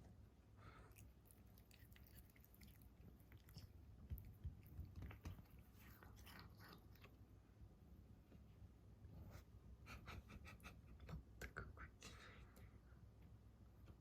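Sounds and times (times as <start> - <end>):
cat chewing grass: 0.8 - 7.2.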